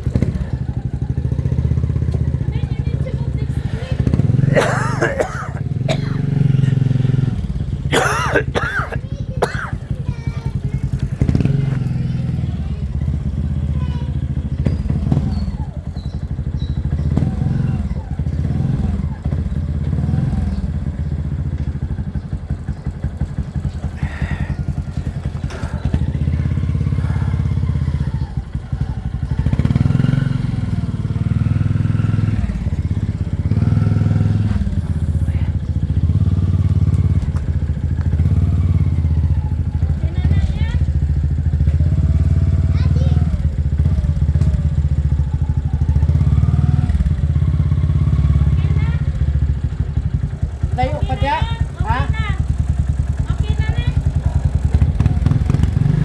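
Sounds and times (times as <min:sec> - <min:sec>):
motorcycle engine idling: 0:00.0 - 0:56.0
faint voices: 0:00.1 - 0:07.1, 0:07.8 - 0:19.6, 0:23.5 - 0:29.7, 0:30.6 - 0:36.2.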